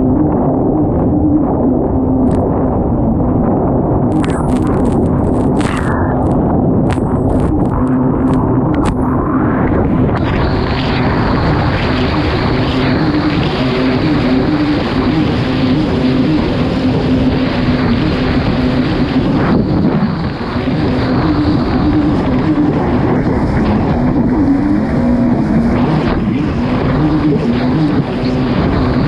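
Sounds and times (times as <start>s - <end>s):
rush of wind and water: 0.0s - 29.0s
watercraft engine running hard: 0.0s - 29.0s.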